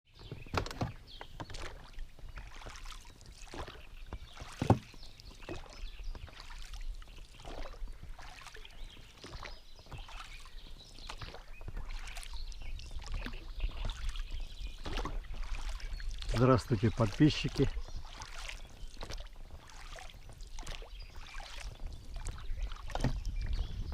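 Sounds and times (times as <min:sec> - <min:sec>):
water lapping around boat: 0:00.1 - 0:23.9
knocks on boat: 0:00.2 - 0:01.8, 0:04.1 - 0:05.6, 0:22.9 - 0:23.4.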